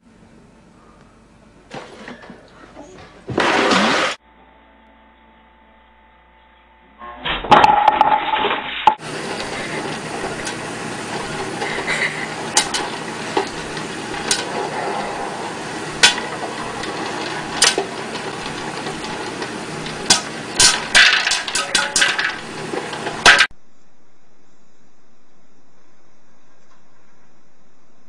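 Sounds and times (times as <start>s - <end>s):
popcorn popper running: 1.6s - 4.2s, 7.5s - 23.5s
popcorn kernels popping: 7.5s - 23.5s.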